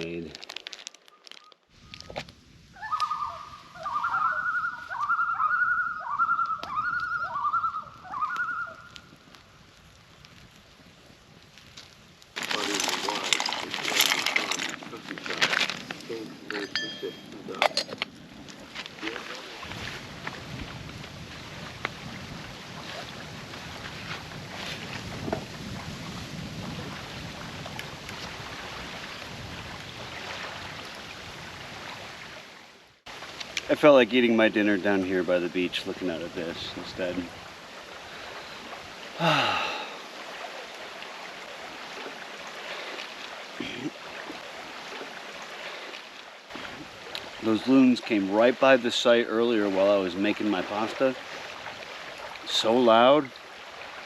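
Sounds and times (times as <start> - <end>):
wind: 0.0 - 54.0
loons tremolo calling: 2.8 - 8.9
small waves on shore: 7.2 - 54.0.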